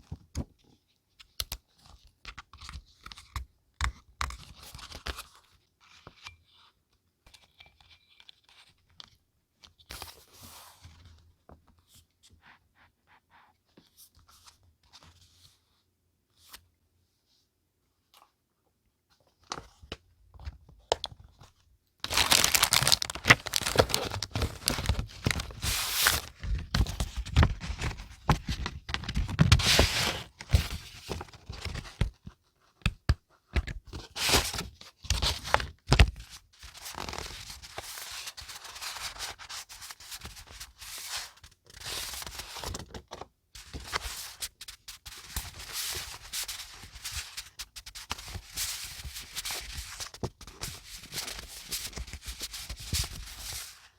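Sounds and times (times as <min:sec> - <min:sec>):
paper rustling and tearing: 0:22.1 - 0:26.4.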